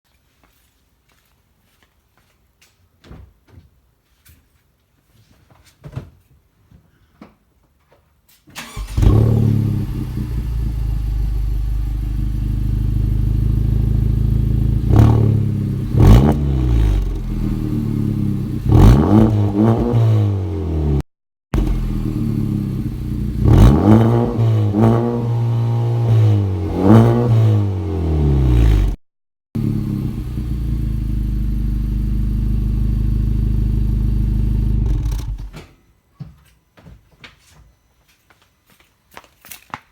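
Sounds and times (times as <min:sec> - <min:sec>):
car engine starting: 0:08.6 - 0:21.0, 0:21.6 - 0:29.0, 0:29.6 - 0:35.6
car engine idling and revving: 0:08.7 - 0:21.0, 0:21.6 - 0:29.0, 0:29.6 - 0:35.5.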